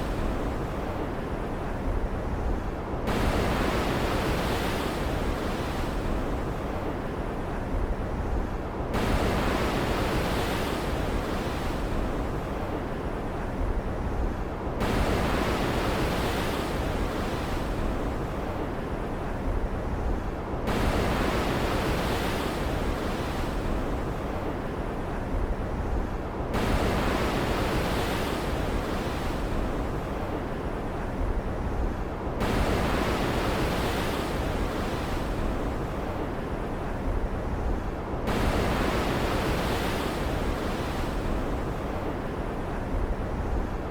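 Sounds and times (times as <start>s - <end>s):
ocean surf: 9.0s - 43.9s.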